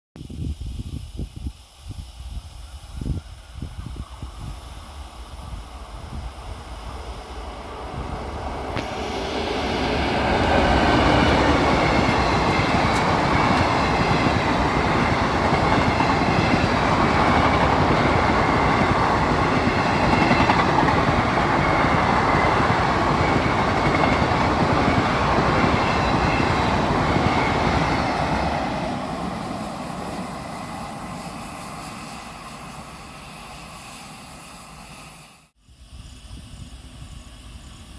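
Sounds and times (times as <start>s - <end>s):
train passing at high speed: 1.8s - 37.9s
train wheels clattering on rails: 7.6s - 32.7s.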